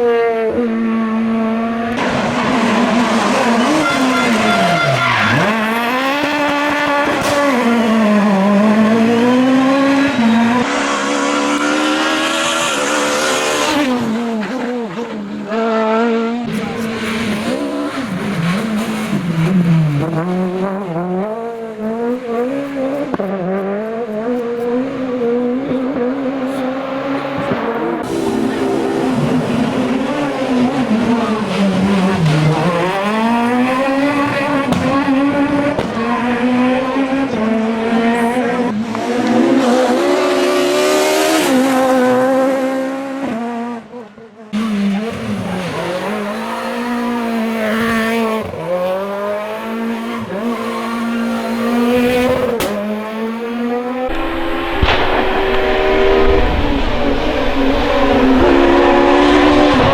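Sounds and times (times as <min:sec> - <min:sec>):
rally car engine revving: 0:00.0 - 0:59.9
tyres squealing: 0:02.3 - 0:06.2.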